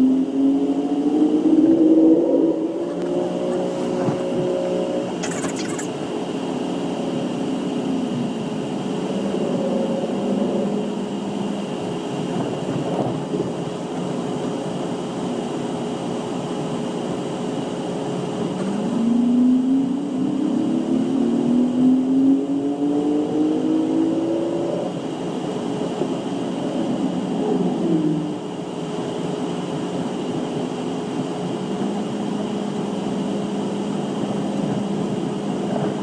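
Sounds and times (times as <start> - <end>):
low hums: 0.8 - 6.2.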